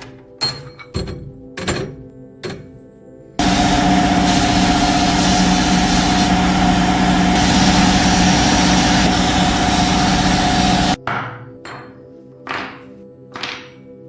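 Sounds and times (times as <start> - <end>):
power tool running: 3.4 - 11.0.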